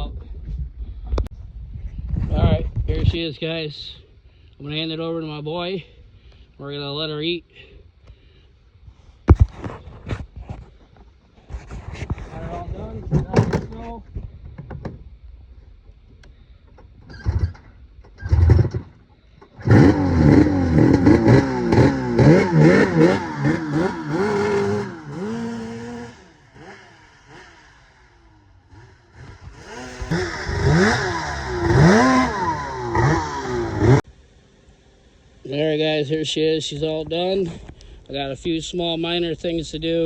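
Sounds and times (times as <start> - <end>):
snowmobile engine revving: 19.6 - 34.0.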